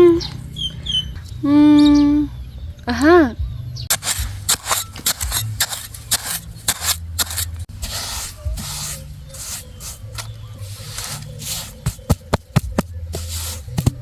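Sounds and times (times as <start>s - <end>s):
scraping strokes: 3.9s - 14.0s.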